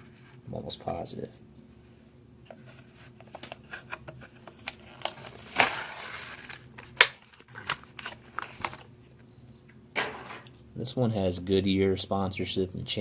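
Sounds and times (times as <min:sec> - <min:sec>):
plastic packaging crackling: 0:04.4 - 0:08.9.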